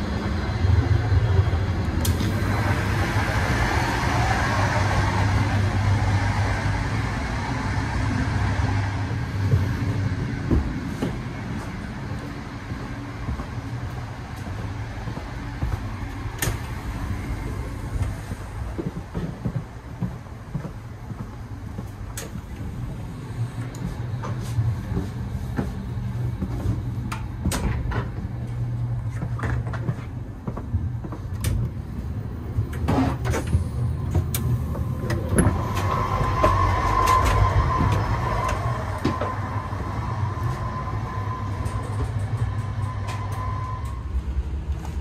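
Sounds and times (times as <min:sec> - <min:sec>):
train rumbling: 0:00.0 - 0:45.0
high squeal: 0:34.5 - 0:44.3.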